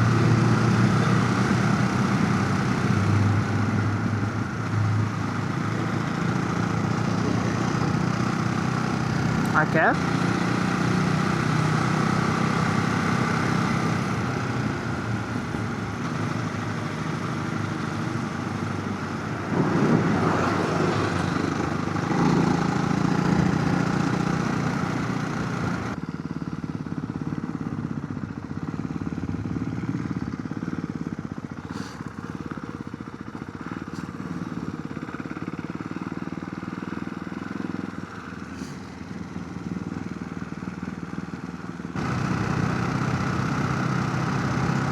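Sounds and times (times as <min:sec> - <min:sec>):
motorcycle engine running: 0:00.0 - 0:44.9
wind rushing at microphone: 0:19.3 - 0:20.8.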